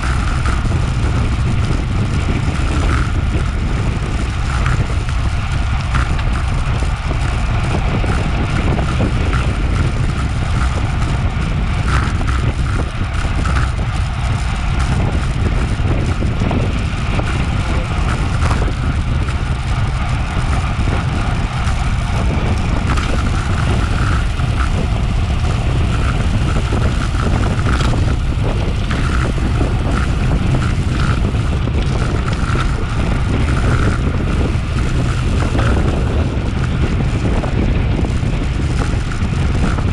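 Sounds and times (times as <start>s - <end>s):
small ticks: 0.0s - 11.2s, 11.8s - 16.2s, 21.6s - 36.7s
low rumble: 0.0s - 39.9s
wind buffeting microphone: 0.0s - 39.9s.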